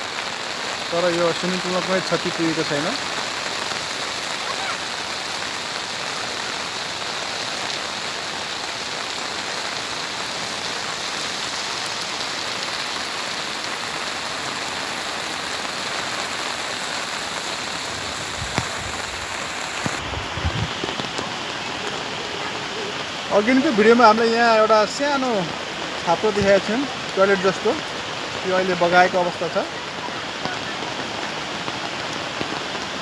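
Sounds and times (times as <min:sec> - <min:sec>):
flood river rushing: 0:00.0 - 0:33.0.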